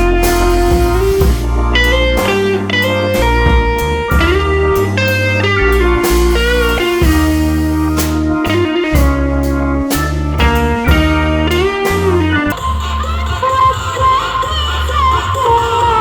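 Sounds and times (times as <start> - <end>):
loud music over sound system: 0.0 - 16.0.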